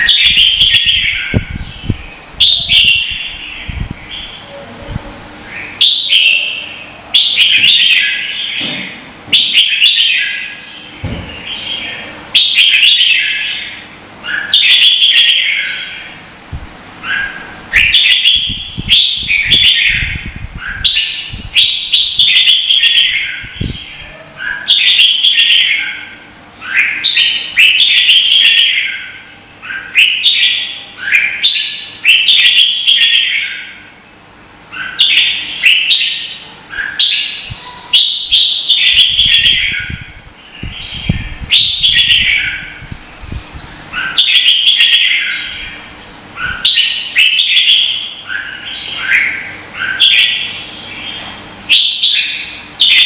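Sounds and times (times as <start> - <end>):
bulbul warbling song: 0.0 - 53.0.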